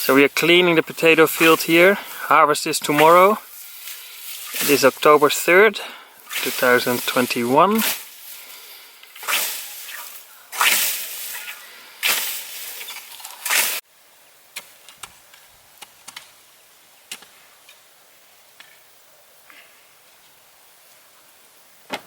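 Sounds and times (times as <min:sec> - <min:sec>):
swishes through dry plant stalks: 0:00.0 - 0:13.8.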